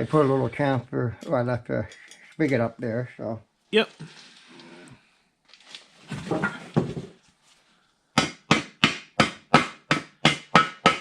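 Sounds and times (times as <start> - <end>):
hammer striking metal: 8.2 - 11.0.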